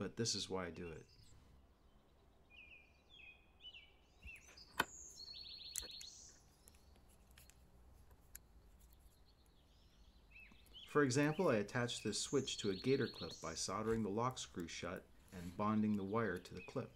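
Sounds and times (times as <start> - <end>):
faint bird chirps and trill: 0.6 - 7.7, 8.6 - 13.8
sharp clicks: 5.7 - 9.0.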